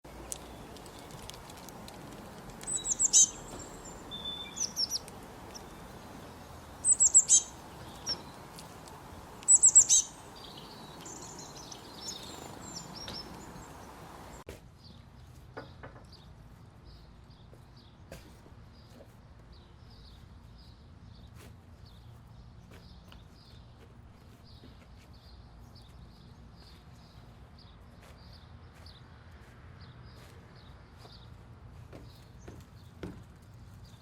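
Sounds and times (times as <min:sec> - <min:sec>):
songbird singing: 0:00.0 - 0:34.0
steady background hiss: 0:00.1 - 0:14.5.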